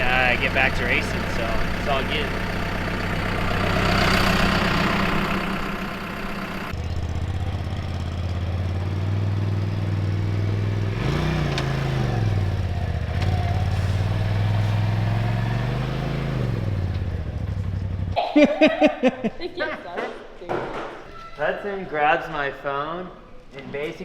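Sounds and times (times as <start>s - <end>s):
vehicle engine revving: 0.0s - 18.2s.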